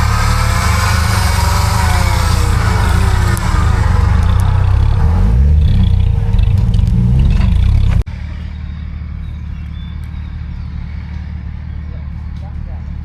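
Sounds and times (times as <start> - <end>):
engine revving under load: 0.0 - 8.1
engine running steadily: 0.0 - 13.0.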